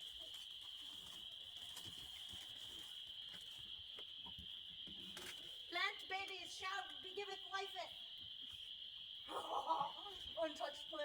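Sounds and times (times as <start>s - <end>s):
chorus of frogs trilling: 0.0s - 11.0s.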